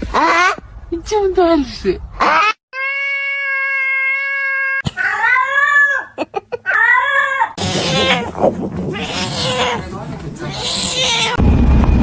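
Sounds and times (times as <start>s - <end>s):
cat meowing: 2.8s - 5.8s, 7.0s - 8.3s, 8.9s - 11.4s.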